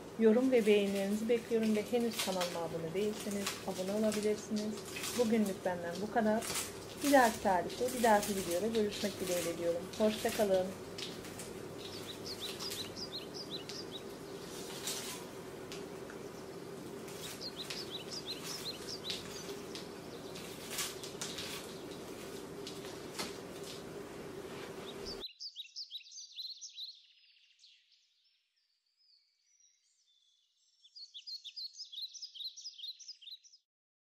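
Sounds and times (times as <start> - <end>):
steady background hum: 0.0 - 25.2
small birds chirping: 0.0 - 33.6.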